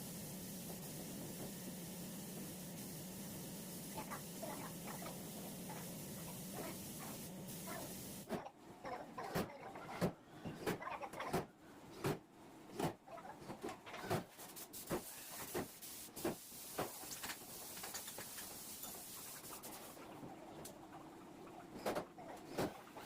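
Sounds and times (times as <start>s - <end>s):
steady hiss: 0.0s - 8.3s, 14.3s - 20.0s.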